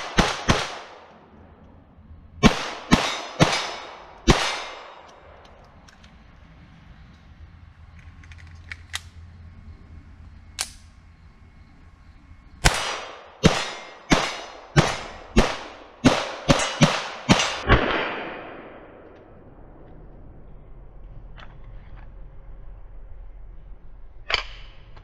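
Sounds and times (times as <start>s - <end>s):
pistol shots with ringing echo: 0.0s - 1.2s, 2.4s - 5.4s, 12.6s - 19.1s.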